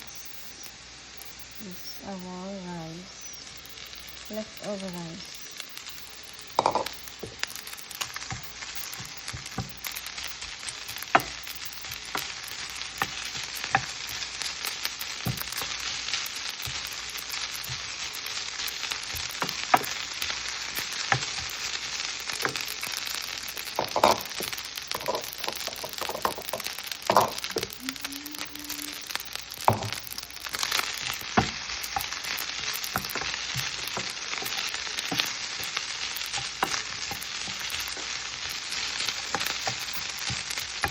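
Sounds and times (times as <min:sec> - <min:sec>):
rice sizzling in a pan: 0:00.0 - 0:40.9.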